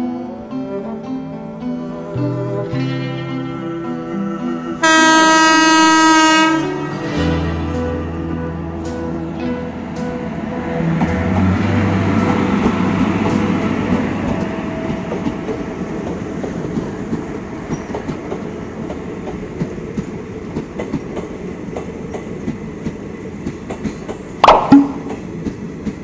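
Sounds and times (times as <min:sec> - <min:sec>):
electric locomotive rumbling past: 0:00.0 - 0:26.0
wheels clicking over rail joints: 0:14.3 - 0:26.0.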